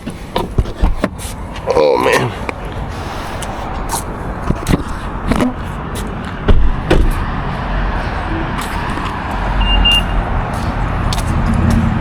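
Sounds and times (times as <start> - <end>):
car cabin rumble: 4.1 - 7.5
short high beep: 9.6 - 10.2.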